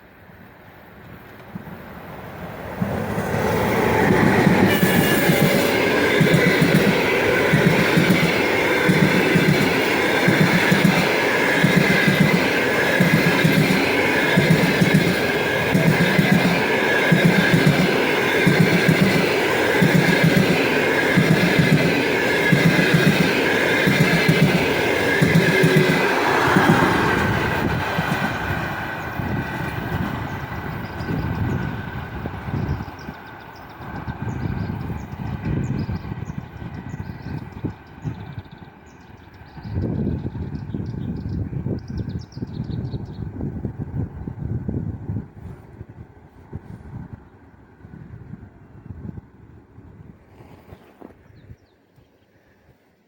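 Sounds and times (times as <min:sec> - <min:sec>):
high whine of locomotive: 0:00.0 - 0:53.0
train wheels clattering: 0:02.8 - 0:32.0.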